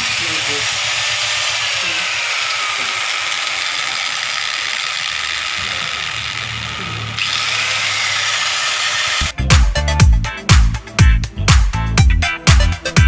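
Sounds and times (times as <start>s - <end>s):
angle grinder high whine: 0.0s - 9.3s.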